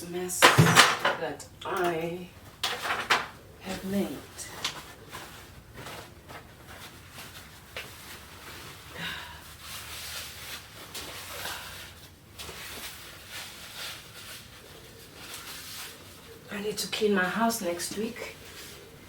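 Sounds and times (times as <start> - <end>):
rubbing and rustling: 2.6 - 19.0.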